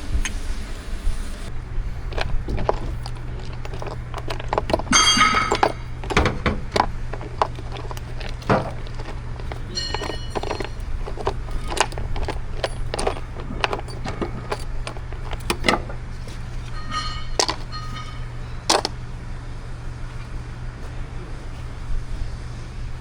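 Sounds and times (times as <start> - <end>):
steady low hum: 0.0 - 23.0
hand tools clinking on steel: 2.1 - 19.0.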